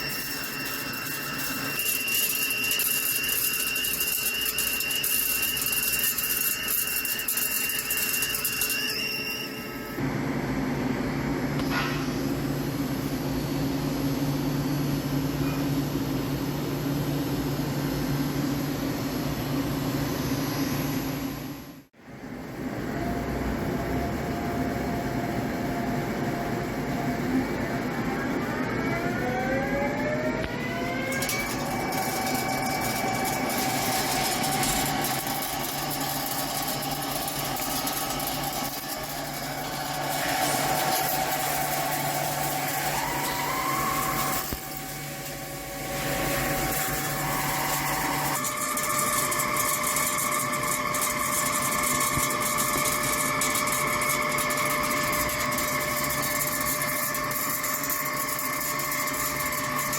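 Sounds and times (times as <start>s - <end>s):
lathe spindle whine: 0.0s - 10.2s, 22.9s - 59.9s.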